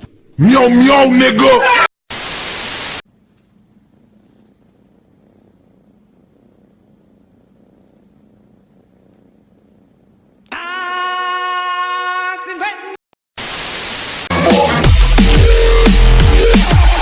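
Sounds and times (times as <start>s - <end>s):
cat purring: 3.1s - 10.5s.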